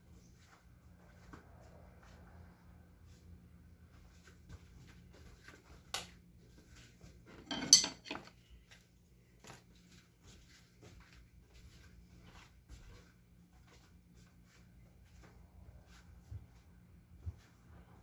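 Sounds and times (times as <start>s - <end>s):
low steady hum: 7.3s - 9.5s
hard objects clattering together: 7.4s - 8.3s.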